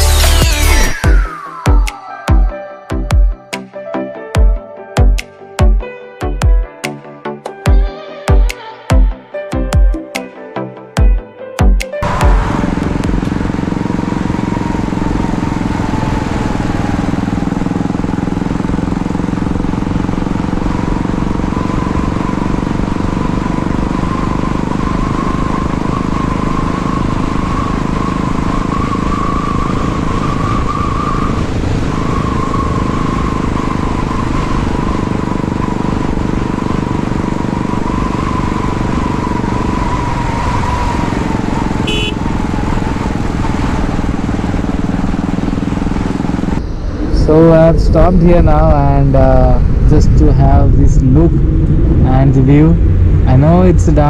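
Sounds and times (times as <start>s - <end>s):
road and riding noise: 0.0s - 3.7s, 10.8s - 54.0s
motorcycle engine running: 12.0s - 46.9s, 47.7s - 54.0s.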